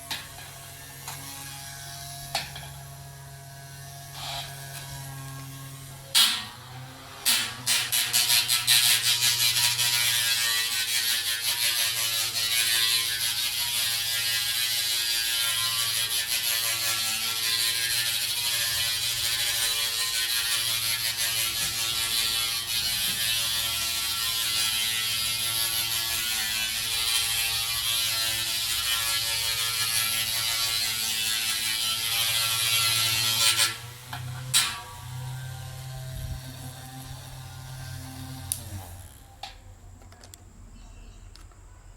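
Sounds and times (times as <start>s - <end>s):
small motor buzzing whir: 0.0s - 39.6s.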